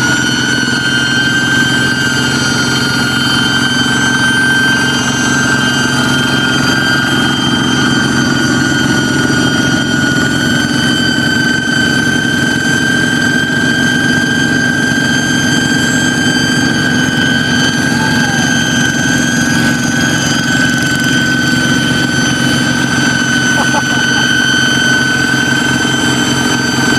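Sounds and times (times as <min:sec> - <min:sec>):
diesel engine chugging: 0:00.0 - 0:26.9
high-pitched whistle: 0:12.4 - 0:26.9.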